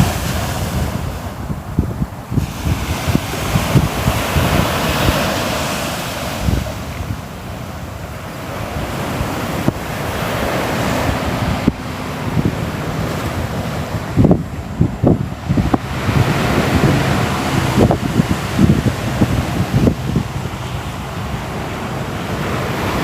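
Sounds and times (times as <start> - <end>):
ocean waves washing: 0.0 - 23.0
wind buffeting microphone: 0.0 - 23.0.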